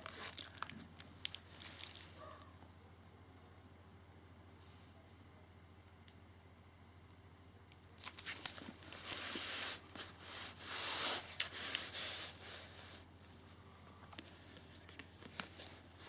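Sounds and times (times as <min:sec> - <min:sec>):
packaging rustling and crinkling: 0:00.0 - 0:02.2, 0:08.0 - 0:13.1, 0:14.2 - 0:16.0.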